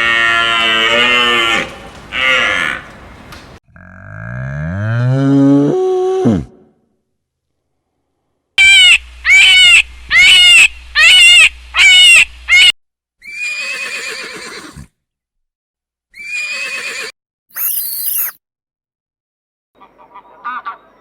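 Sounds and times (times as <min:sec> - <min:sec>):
farm animal calls: 0:00.0 - 0:03.6.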